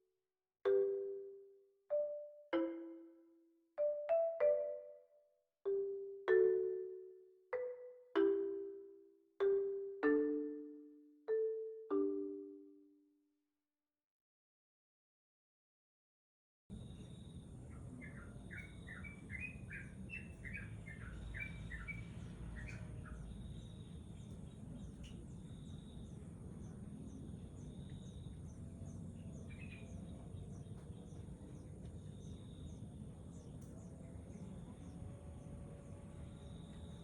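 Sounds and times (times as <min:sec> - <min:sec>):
high insect chirps: 0:16.7 - 0:22.0, 0:22.6 - 0:30.8, 0:35.8 - 0:37.0
nestling chirping: 0:17.7 - 0:26.2.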